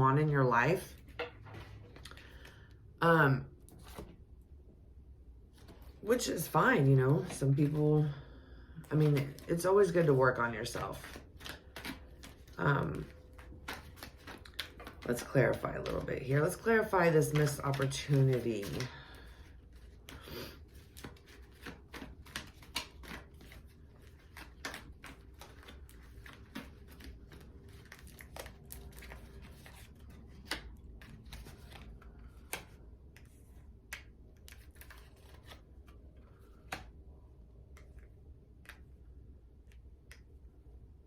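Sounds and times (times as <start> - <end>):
cards being shuffled: 3.6 - 4.2, 8.8 - 37.0.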